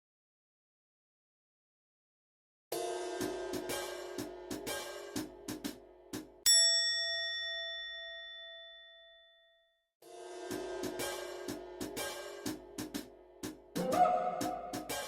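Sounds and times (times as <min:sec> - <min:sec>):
music with hi-hat beat: 0:02.8 - 0:06.4, 0:10.1 - 0:15.0
bell-like ding: 0:06.5 - 0:09.8.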